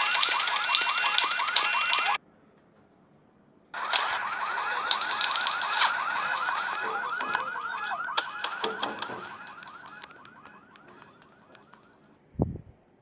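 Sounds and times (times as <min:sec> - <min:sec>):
warbling alarm siren: 0:00.0 - 0:02.2, 0:03.8 - 0:12.2
sharp clicks and knocks: 0:06.6 - 0:11.9.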